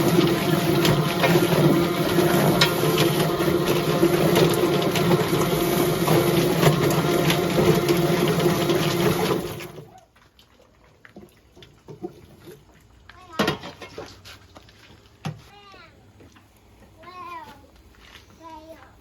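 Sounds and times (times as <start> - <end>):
water spray rushing: 0.0 - 9.8
motor hum: 0.0 - 9.9.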